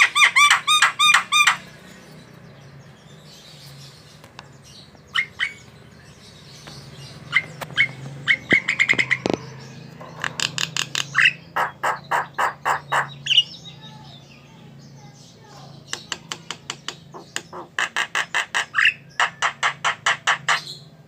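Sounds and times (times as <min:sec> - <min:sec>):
harsh noisy bird calls: 0:00.0 - 0:21.0
bird clipped chirps: 0:06.6 - 0:13.5.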